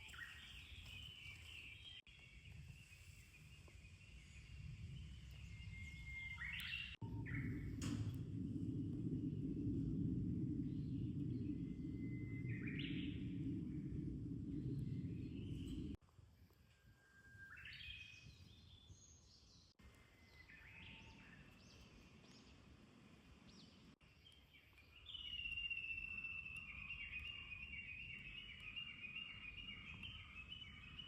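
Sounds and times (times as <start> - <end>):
birds chirping: 0.0 - 16.0, 23.4 - 31.0
soft outdoor background hum: 0.0 - 17.7, 18.6 - 31.0.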